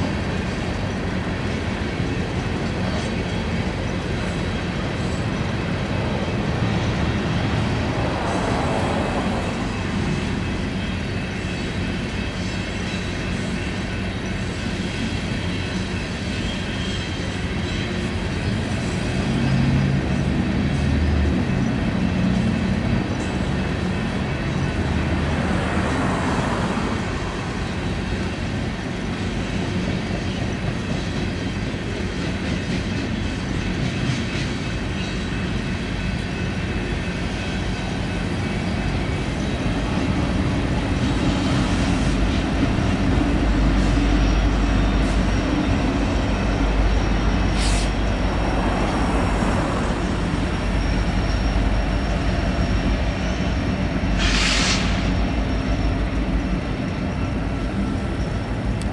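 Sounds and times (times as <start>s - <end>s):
train wheels rumbling on rails: 0.0s - 58.9s.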